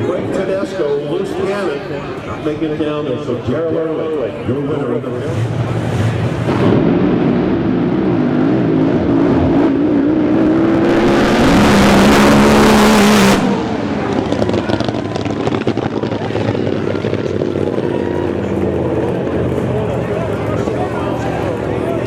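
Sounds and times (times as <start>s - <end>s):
racing boat engine: 4.9s - 22.0s.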